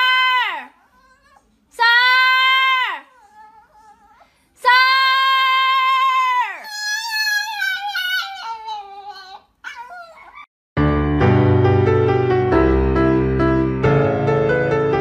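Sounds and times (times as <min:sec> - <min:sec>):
animal crying: 0:00.0 - 0:04.4, 0:05.5 - 0:10.5.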